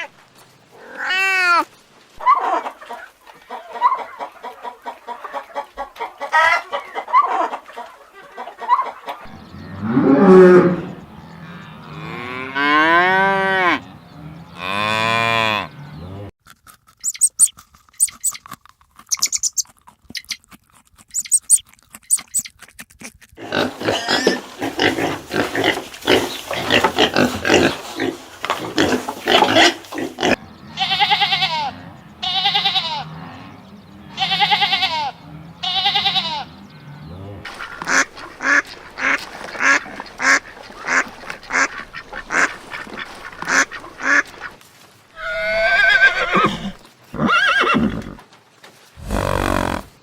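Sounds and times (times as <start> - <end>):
farm animal calls: 0.0 - 16.3, 21.1 - 22.6, 23.4 - 48.4, 49.0 - 50.0.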